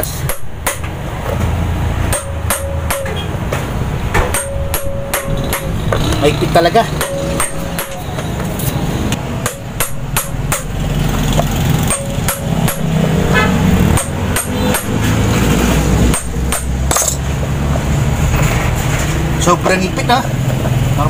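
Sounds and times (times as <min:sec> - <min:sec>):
hammer tapping metal tool: 0:02.1 - 0:06.2, 0:06.9 - 0:08.5, 0:09.1 - 0:13.2, 0:13.9 - 0:15.3, 0:16.1 - 0:17.3.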